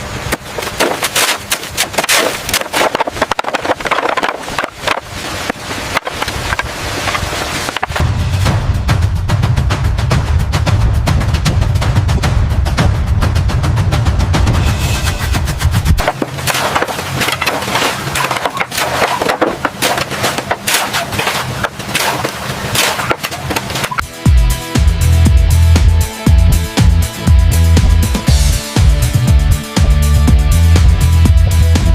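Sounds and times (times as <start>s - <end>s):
music with heavy bass beat: 7.9s - 16.4s, 23.9s - 31.9s
hammering and knocking bangs: 15.9s - 24.0s.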